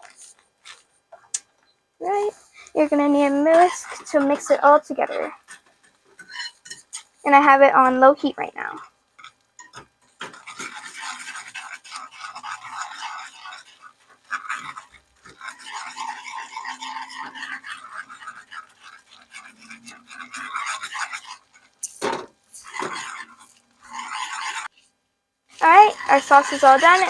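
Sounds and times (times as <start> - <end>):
whisk scraping round a pan: 0.0 - 27.0
whisk clinking against pan: 5.0 - 7.1, 9.2 - 24.7, 25.6 - 27.0.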